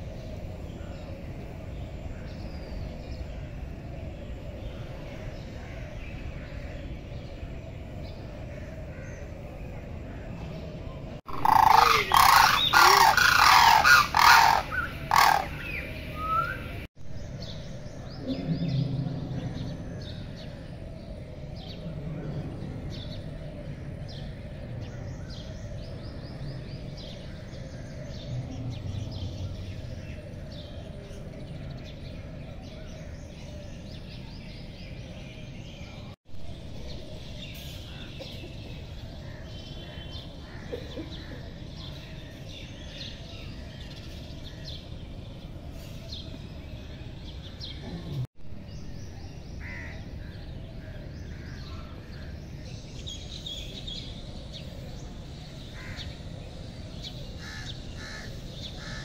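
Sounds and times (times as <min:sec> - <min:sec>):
outdoor background noise: 0:00.0 - 0:59.0
birds calling loudly: 0:11.3 - 0:16.9, 0:55.5 - 0:59.0
small birds chirping: 0:11.3 - 0:18.6.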